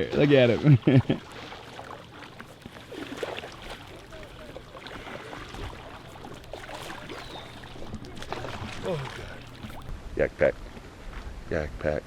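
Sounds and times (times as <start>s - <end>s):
kayak paddles splashing: 0.0s - 11.3s.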